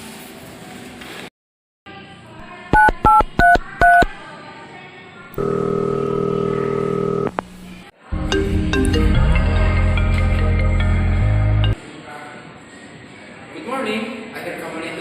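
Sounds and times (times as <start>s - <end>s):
telephone ringing tone: 2.8s - 4.1s, 5.4s - 7.3s
touch-tone keypad beeps: 2.8s - 4.2s.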